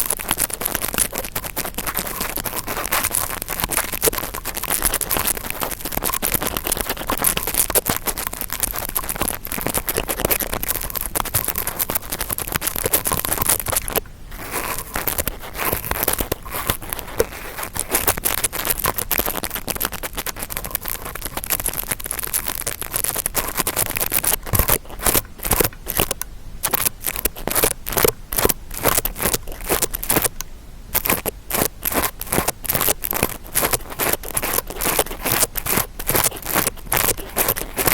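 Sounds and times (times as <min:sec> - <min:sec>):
brush scratching: 0:00.0 - 0:30.4, 0:31.0 - 0:37.9.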